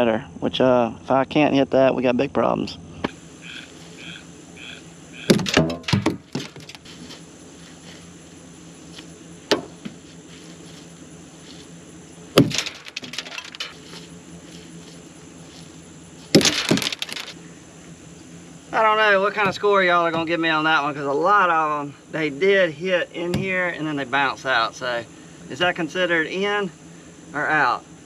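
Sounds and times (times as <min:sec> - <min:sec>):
crickets chirping: 0:00.0 - 0:28.0
corn ears clattering on metal: 0:05.2 - 0:07.1, 0:12.3 - 0:14.6, 0:16.2 - 0:17.4.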